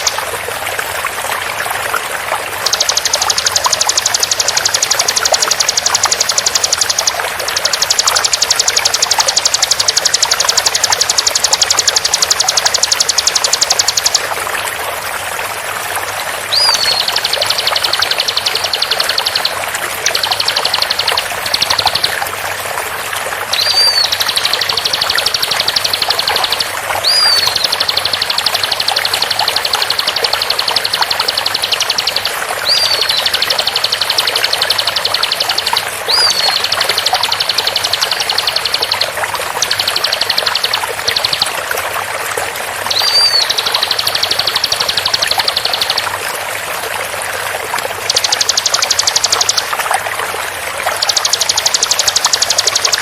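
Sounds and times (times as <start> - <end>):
flowing water: 0.0 - 53.0
bird song fast high notes: 23.5 - 39.0.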